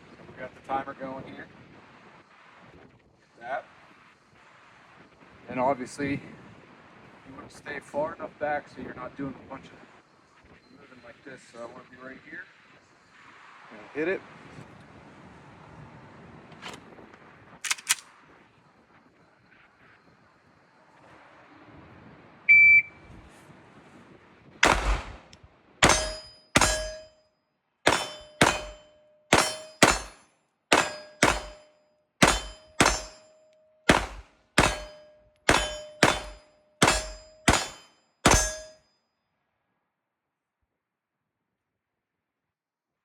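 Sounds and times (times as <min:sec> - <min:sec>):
handgun shots: 0:17.6 - 0:18.0, 0:24.6 - 0:25.2, 0:25.8 - 0:27.1, 0:27.9 - 0:38.8
shot timer beep: 0:22.5 - 0:22.9
steel target ringing: 0:25.8 - 0:27.2, 0:27.9 - 0:38.8.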